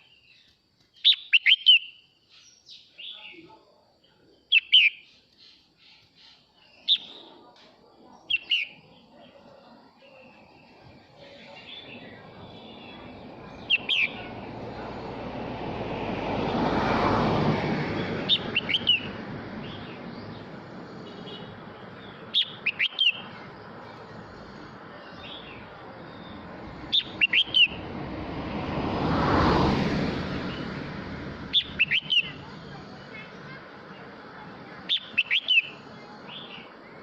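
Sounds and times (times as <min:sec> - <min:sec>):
broad rushing noise: 0:10.5 - 0:37.0
bird singing high notes: 0:31.5 - 0:32.4.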